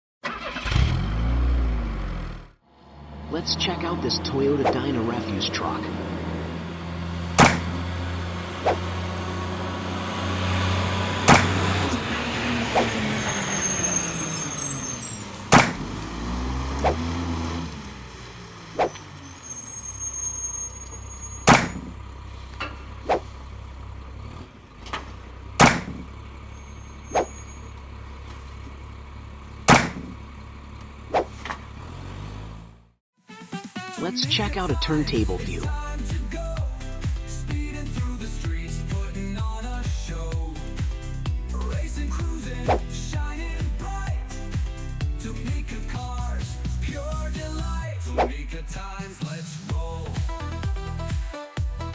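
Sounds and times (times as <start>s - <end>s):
truck engine running: 1.0s - 32.9s, 34.1s - 51.9s.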